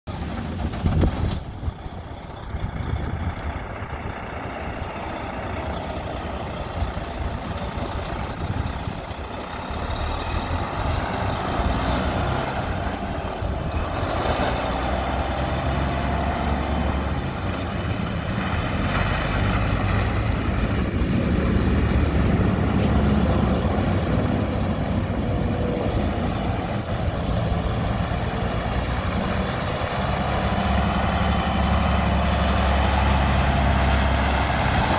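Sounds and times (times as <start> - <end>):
truck diesel engine running: 0.1 - 34.9.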